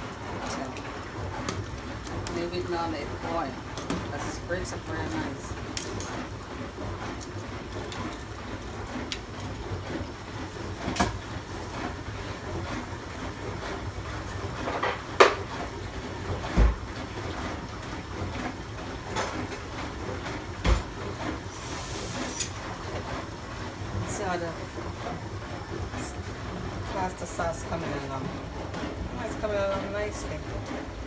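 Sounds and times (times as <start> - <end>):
dishwasher humming: 0.0 - 31.0
pots and pans clinking: 3.7 - 4.4, 5.6 - 6.4, 7.2 - 9.7, 10.8 - 11.3, 14.6 - 15.5.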